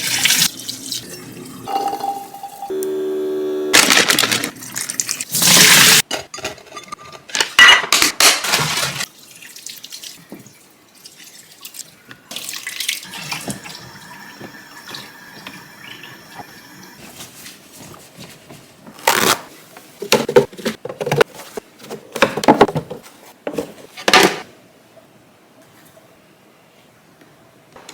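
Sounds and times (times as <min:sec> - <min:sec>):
kitchen tap running: 0:00.0 - 0:02.7, 0:04.3 - 0:06.0, 0:09.0 - 0:17.0
containers knocking and clattering: 0:20.0 - 0:24.4.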